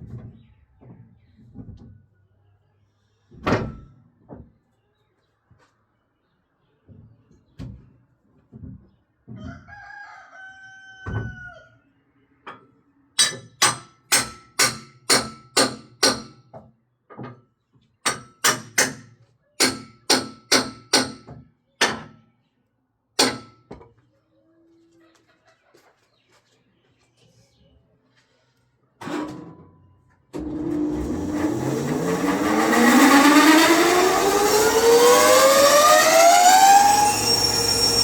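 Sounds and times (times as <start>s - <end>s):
rooster crowing: 9.4s - 11.8s
sharp ringing knocks: 13.2s - 16.5s, 23.2s - 23.7s.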